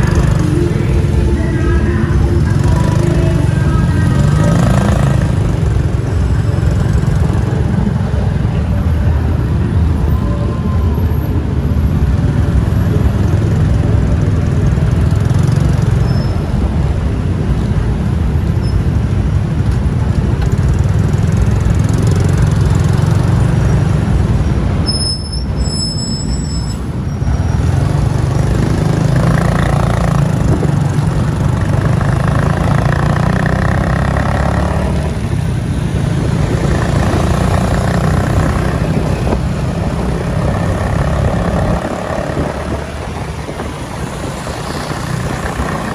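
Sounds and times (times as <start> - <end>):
vehicle passing: 0.0 - 10.0, 27.4 - 45.9
motorbike engine rumble: 0.0 - 45.9.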